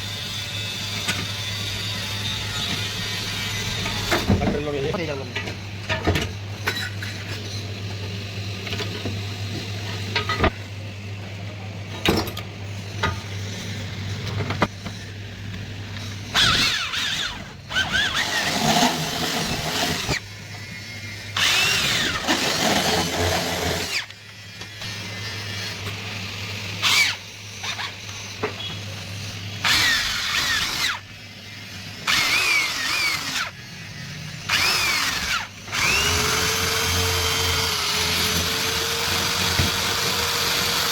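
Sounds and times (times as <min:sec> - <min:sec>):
electric drill drilling into metal: 0:16.3 - 0:28.4, 0:29.6 - 0:40.9.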